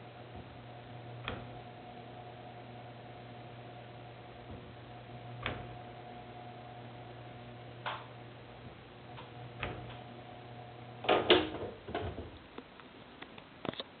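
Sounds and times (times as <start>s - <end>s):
screen winding mechanism humming: 0.1s - 11.4s
loud clunks: 11.0s - 12.4s.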